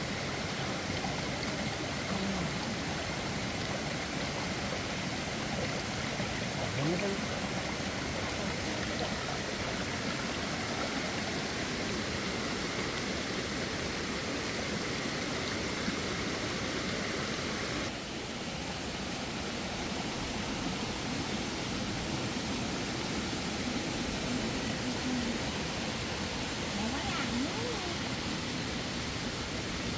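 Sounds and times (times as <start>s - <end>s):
mountain stream flowing: 0.0s - 29.9s.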